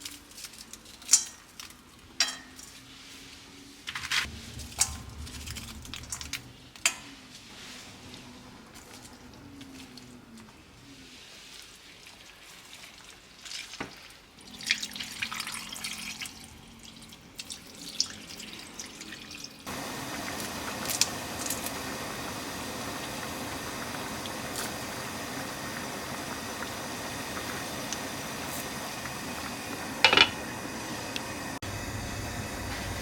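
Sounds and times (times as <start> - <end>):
water splashing and dripping: 4.2 - 6.9, 11.5 - 29.9
running tap: 14.9 - 31.4.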